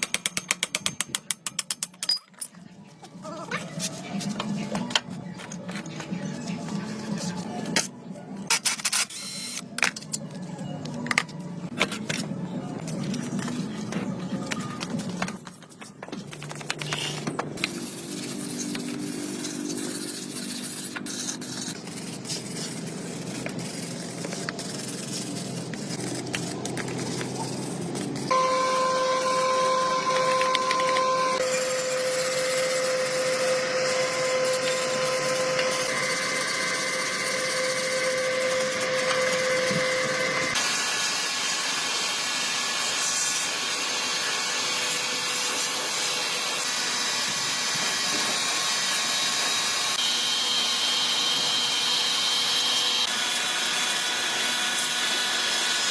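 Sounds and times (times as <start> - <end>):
power tool motor whining: 28.3 - 40.8.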